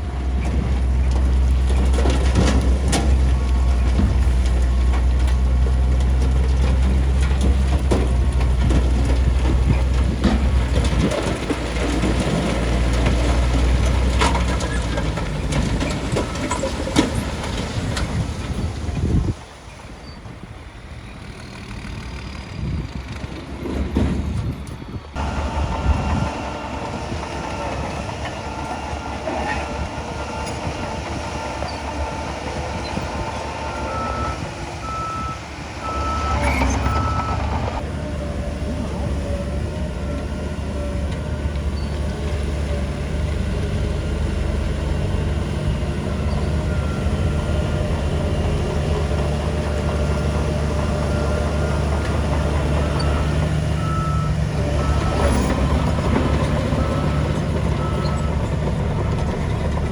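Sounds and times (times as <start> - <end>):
heavy machinery diesel engines: 0.0 - 59.9
reversing alarm beeping: 25.2 - 37.8, 50.7 - 59.7.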